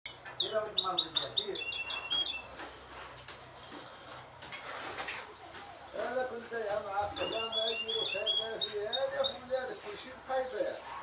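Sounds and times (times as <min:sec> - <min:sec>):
finches twittering: 0:07.2 - 0:09.8.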